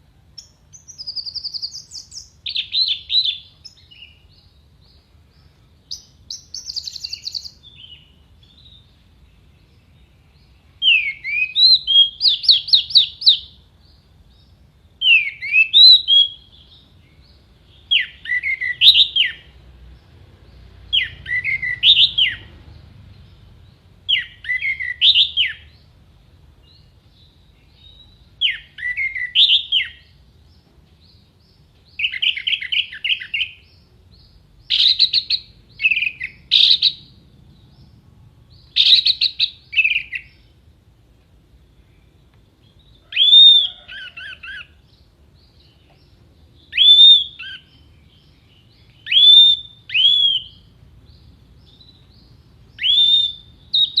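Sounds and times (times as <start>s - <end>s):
thrush singing whistled phrases: 6.0s - 8.0s, 10.8s - 13.5s, 15.0s - 16.6s, 17.8s - 19.5s, 20.9s - 22.5s, 24.1s - 25.8s, 28.4s - 30.1s, 34.7s - 37.1s, 38.7s - 40.4s, 43.1s - 44.7s, 46.7s - 47.9s, 48.8s - 50.7s, 52.7s - 54.0s.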